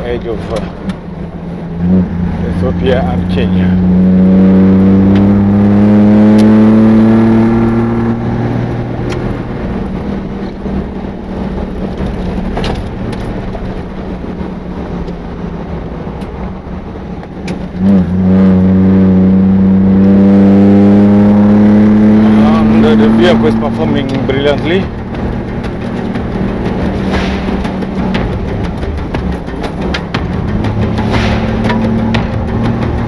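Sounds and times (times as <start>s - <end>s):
vehicle engine pulling hard: 0.0s - 33.0s
tyre and track noise: 6.2s - 18.4s, 22.0s - 33.0s
sharp knocks: 24.8s - 33.0s.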